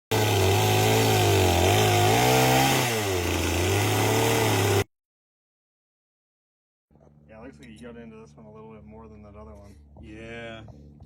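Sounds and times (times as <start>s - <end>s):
chainsaw cutting log: 0.1s - 4.9s.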